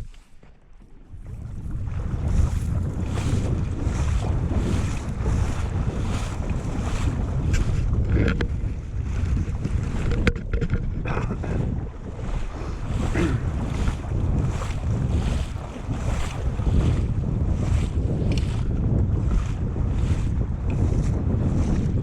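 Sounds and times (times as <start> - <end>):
wind buffeting microphone: 0.8 - 22.0.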